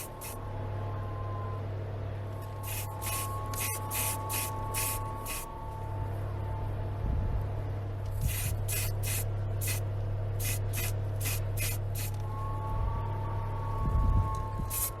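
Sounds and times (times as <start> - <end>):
paint spraying hiss: 0.0 - 0.4, 2.6 - 5.5, 8.1 - 9.8, 10.4 - 12.2, 14.6 - 15.0
steady low hum: 0.0 - 15.0.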